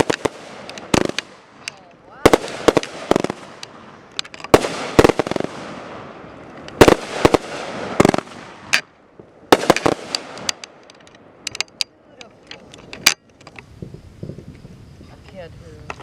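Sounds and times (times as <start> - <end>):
fireworks bangs and crackles: 0.0 - 11.4.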